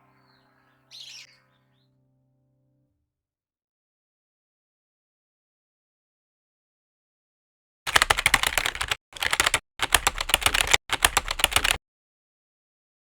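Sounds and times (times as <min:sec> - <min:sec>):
rapid key clicking: 0:07.9 - 0:11.8.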